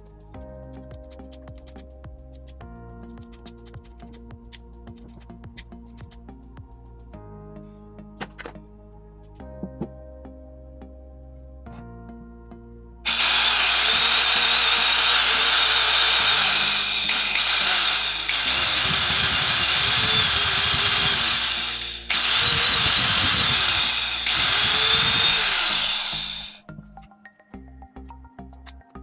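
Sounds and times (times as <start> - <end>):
electric drill running: 13.1 - 26.6.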